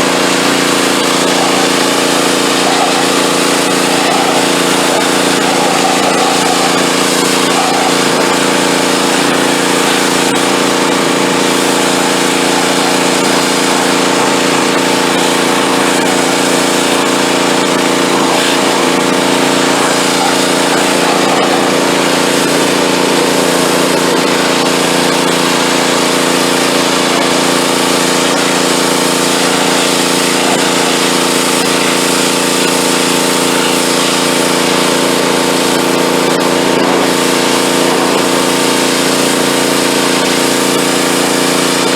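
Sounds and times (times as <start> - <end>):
pressure washer engine running: 0.0 - 41.9
water spray hissing: 0.0 - 41.9.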